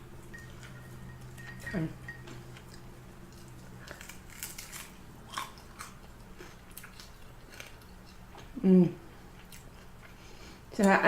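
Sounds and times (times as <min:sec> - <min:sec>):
chewing crispy fried chicken: 0:02.5 - 0:10.3.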